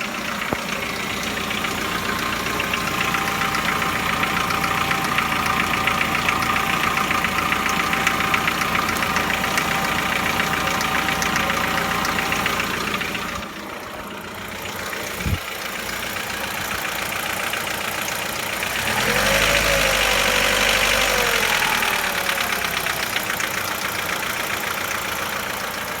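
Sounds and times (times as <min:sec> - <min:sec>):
car engine idling with knock: 0:00.0 - 0:26.0.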